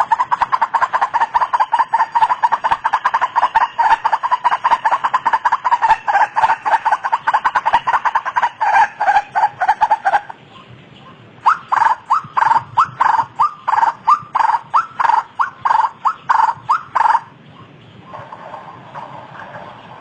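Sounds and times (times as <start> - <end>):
waterhen calling: 0.0 - 10.4, 11.4 - 19.6.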